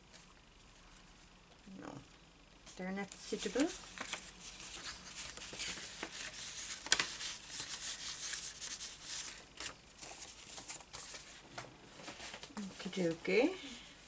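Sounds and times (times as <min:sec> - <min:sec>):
paper rustling: 0:03.0 - 0:13.2.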